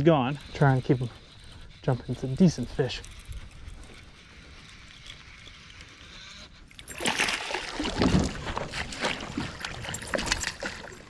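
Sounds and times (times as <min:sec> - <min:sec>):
fish splashing at water surface: 0:06.8 - 0:11.0.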